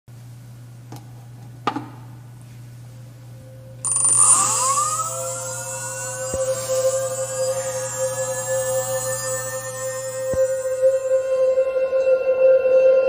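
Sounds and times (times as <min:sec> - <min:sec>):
faint steady hum: 0:00.1 - 0:13.0
ambient electronic music: 0:03.5 - 0:13.0.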